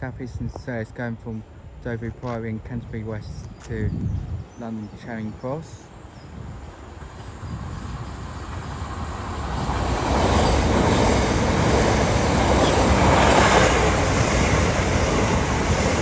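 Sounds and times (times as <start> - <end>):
train passing at speed: 5.6 - 16.0.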